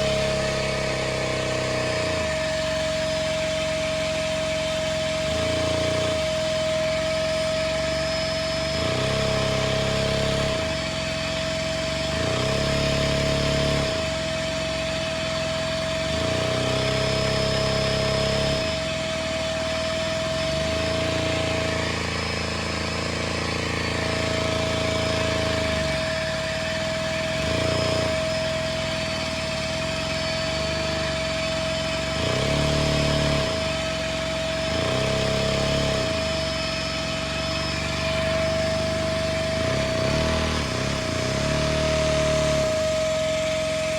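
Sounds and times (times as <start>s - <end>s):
low gear noise: 0.0s - 43.9s
toy motor high whine: 15.8s - 19.2s, 19.9s - 43.9s.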